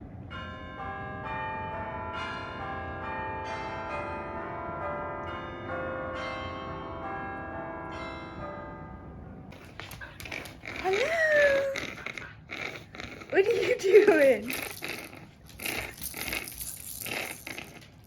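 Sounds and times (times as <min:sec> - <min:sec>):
bells ringing a melody: 0:00.3 - 0:09.2.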